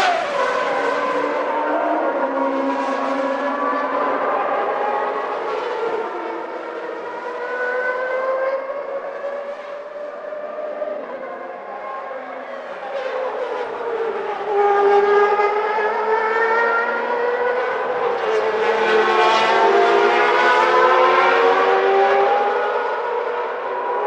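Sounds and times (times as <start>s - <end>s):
racing car engines at high revs: 0.0s - 24.0s.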